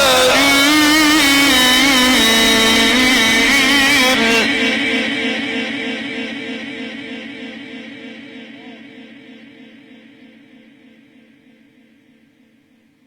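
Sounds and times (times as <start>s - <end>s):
man reciting melodically: 0.0s - 5.0s
echo of voice: 0.0s - 10.3s.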